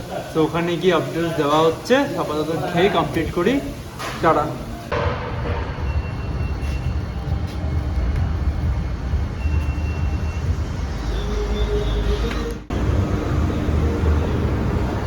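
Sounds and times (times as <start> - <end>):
road and traffic noise: 0.0 - 15.0.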